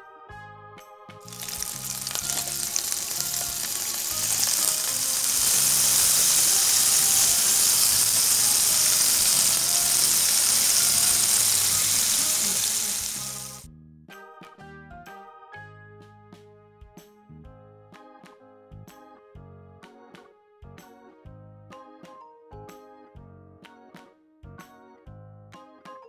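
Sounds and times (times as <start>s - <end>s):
soft keyboard music: 0.0s - 26.0s
vegetables sizzling in hot oil: 1.2s - 13.7s.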